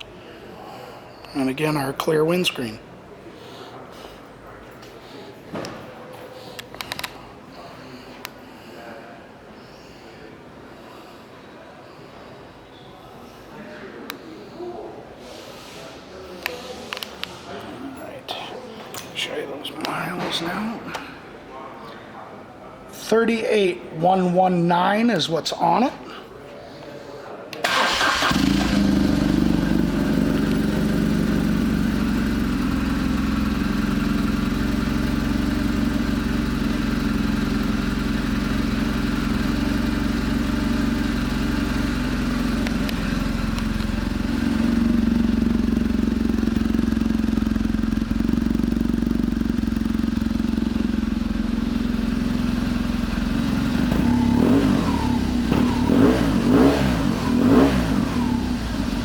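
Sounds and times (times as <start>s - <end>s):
motorcycle engine idling: 27.7s - 59.0s.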